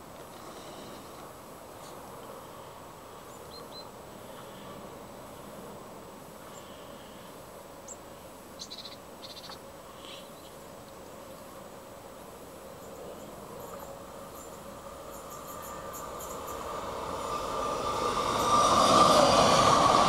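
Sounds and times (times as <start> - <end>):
distant background hum: 0.0 - 20.0
small birds chirping and trilling: 3.2 - 4.7, 6.5 - 11.5, 12.8 - 16.8.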